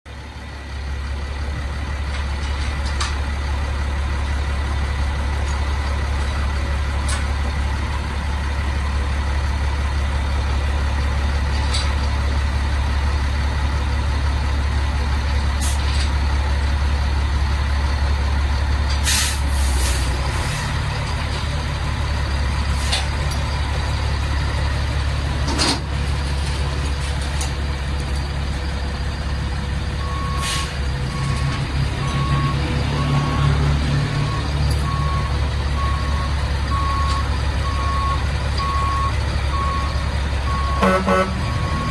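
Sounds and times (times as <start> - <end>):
truck diesel engine idling: 0.1 - 41.9
air brake hiss: 19.0 - 20.7, 30.4 - 30.8.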